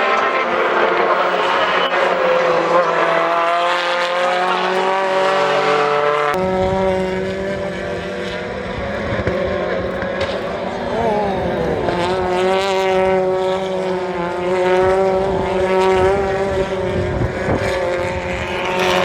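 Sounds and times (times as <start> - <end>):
racing car engines at speed: 0.0 - 19.0.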